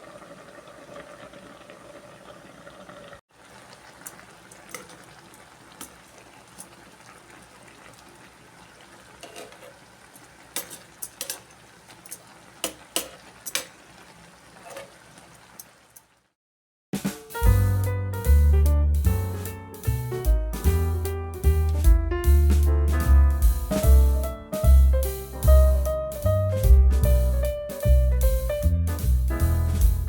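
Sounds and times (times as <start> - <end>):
food bubbling in a pan: 0.0 - 16.4.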